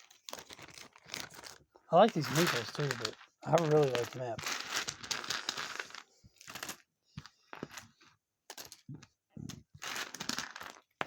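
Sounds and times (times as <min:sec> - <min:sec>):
plastic packaging rustling and crackling: 0:00.0 - 0:06.2.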